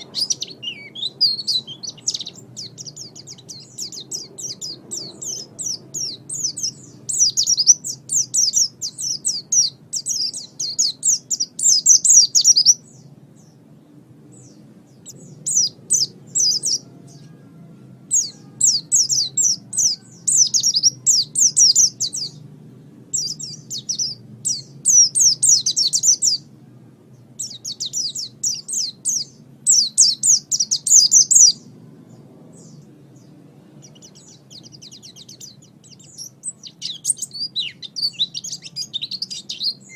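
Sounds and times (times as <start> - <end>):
white-eye bird twittering: 0.0 - 13.0
faint low hum: 0.0 - 39.9.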